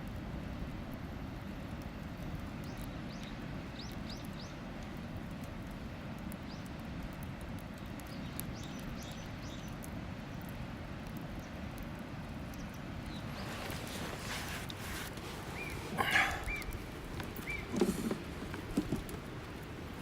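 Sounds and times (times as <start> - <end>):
campfire crackling and popping: 0.0 - 20.0
bird chirping: 15.5 - 16.8, 17.4 - 17.9.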